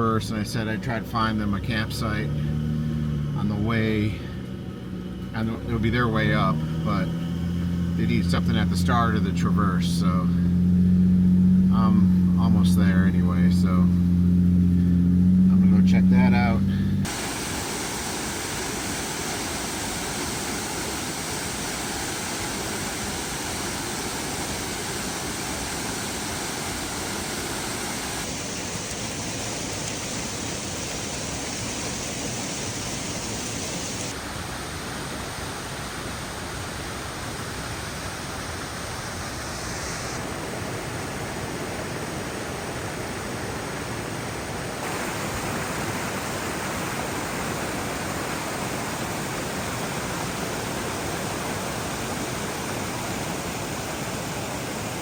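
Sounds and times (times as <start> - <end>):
waterfall rushing: 17.0 - 55.0.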